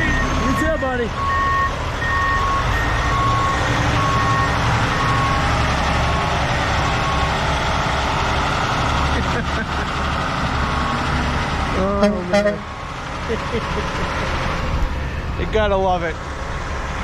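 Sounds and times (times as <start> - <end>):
reversing alarms beeping: 0.0 - 7.4, 10.1 - 13.0
truck engine rumble: 0.0 - 17.0.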